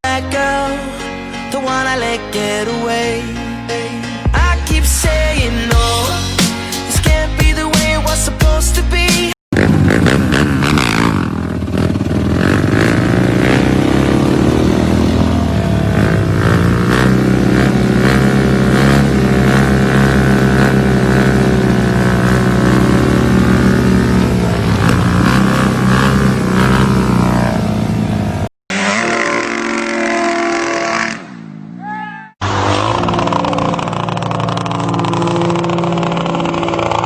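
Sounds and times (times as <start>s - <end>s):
motorcycle engine revving: 9.5s - 31.8s, 32.4s - 37.0s
another engine: 9.5s - 37.0s.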